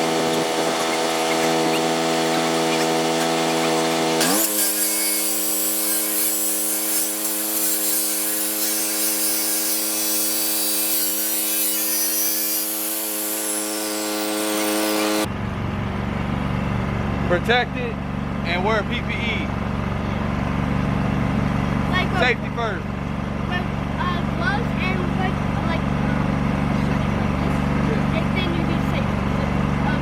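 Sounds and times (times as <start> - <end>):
chop saw cutting metal: 0.0 - 15.3.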